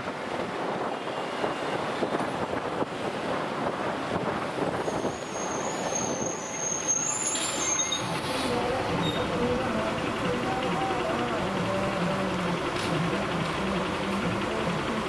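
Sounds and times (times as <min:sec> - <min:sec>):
wind rushing over microphone: 0:00.0 - 0:06.4
motorcycle engine and road noise: 0:00.0 - 0:15.0
thin high whistle: 0:04.8 - 0:09.2.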